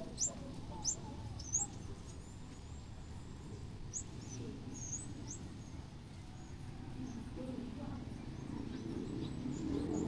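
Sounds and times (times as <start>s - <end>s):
low hum of street noise: 0.0s - 10.0s.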